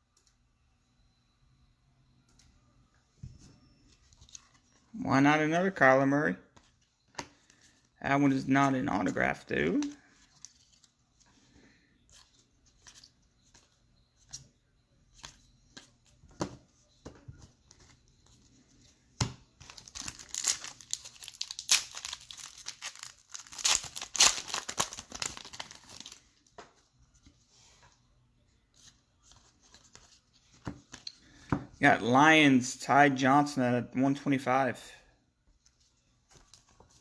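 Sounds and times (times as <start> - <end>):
wrapper tearing and crinkling: 19.6 - 26.2.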